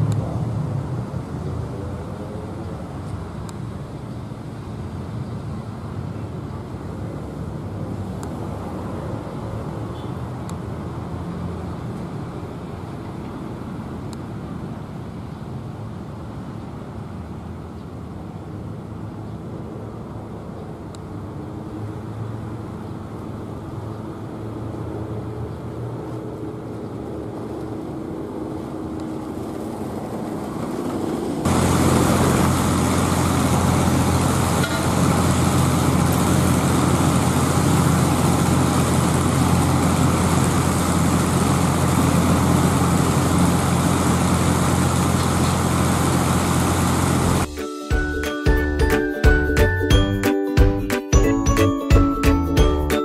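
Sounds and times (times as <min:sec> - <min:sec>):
train running hum: 0:19.6 - 0:49.8
rail welding machine hum: 0:25.9 - 0:47.5.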